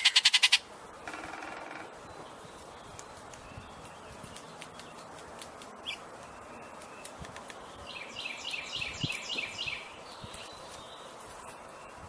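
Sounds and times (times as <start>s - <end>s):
outdoor background noise: 0.0s - 12.0s
songbird singing high notes: 7.8s - 11.0s.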